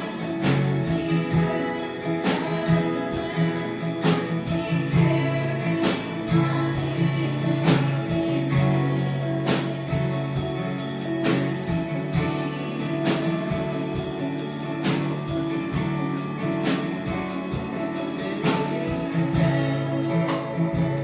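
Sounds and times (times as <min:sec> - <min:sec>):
voices singing: 0:00.0 - 0:09.8
strummed guitar: 0:00.0 - 0:21.0.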